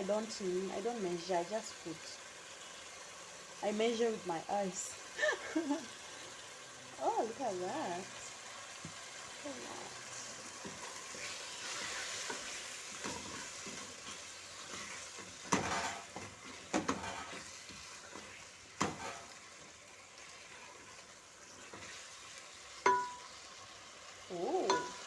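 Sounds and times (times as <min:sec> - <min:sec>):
meat sizzling in a pot: 0:00.0 - 0:25.0
spoon knocking against pot: 0:22.8 - 0:23.3, 0:24.7 - 0:25.0.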